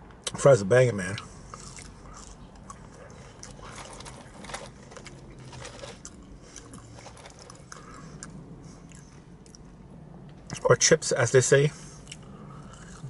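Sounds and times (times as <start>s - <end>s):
person chewing fries: 1.2s - 10.0s, 11.9s - 13.0s.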